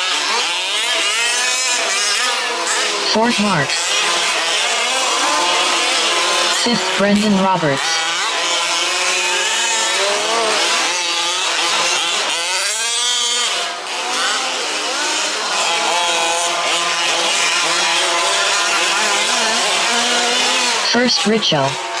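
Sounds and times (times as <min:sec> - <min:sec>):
rc truck engines revving: 0:00.0 - 0:22.0.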